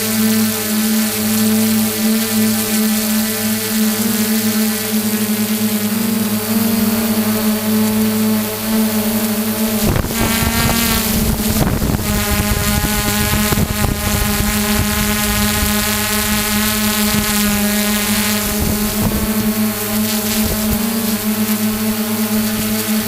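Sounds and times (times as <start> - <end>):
drone motors humming: 0.0 - 23.0
wind buffeting microphone: 9.0 - 22.8.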